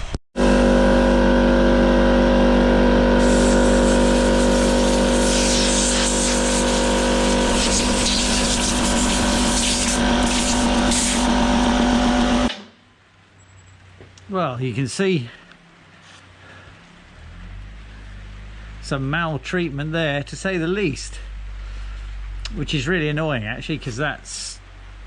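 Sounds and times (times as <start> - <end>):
electric power tool running: 0.4 - 12.8
harsh scratching against metal part: 3.2 - 12.5.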